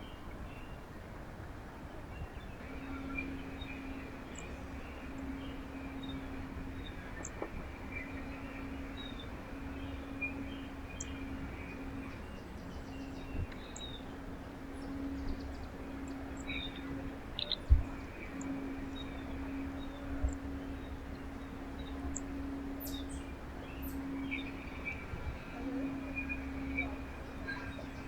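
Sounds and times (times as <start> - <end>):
low hum and rumble: 2.2 - 28.0
small birds chirping: 16.4 - 19.2.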